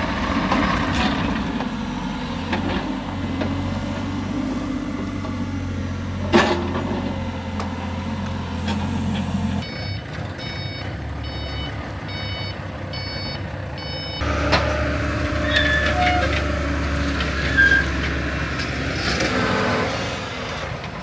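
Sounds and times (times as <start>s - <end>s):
diesel engine running: 0.0s - 21.0s
backup alarm beeping: 9.6s - 15.0s.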